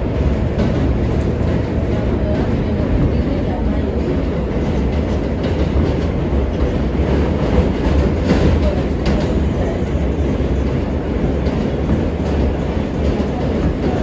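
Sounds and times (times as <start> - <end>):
sharp track clacks: 0.0 - 3.2, 4.0 - 9.7
train wheels rumbling on track: 0.0 - 14.0.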